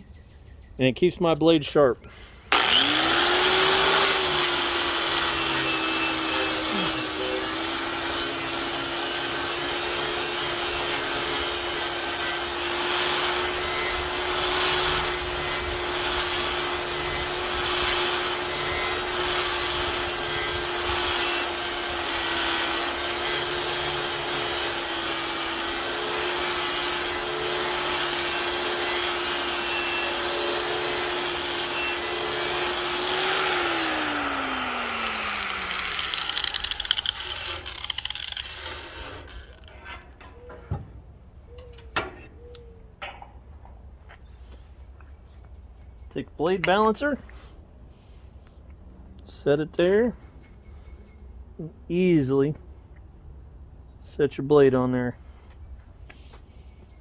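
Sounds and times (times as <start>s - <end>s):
angle grinder grinding steel: 2.5s - 40.5s.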